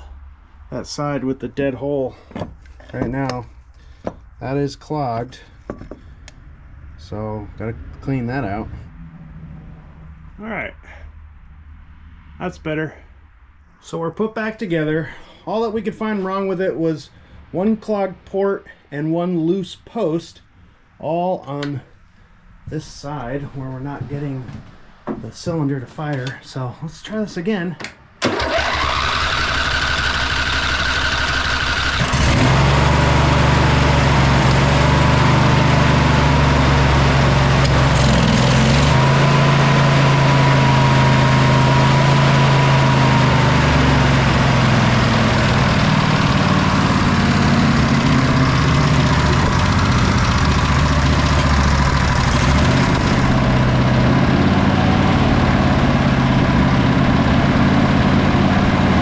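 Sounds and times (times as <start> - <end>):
electric starter whine: 28.2 - 59.0
lawn tractor engine running: 28.2 - 59.0.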